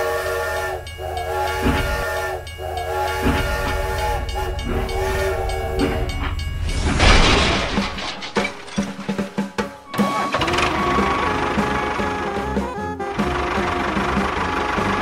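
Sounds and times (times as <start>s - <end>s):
steam-train whistle toots: 0.0s - 6.8s, 9.9s - 15.0s
steady low hum: 0.0s - 9.4s.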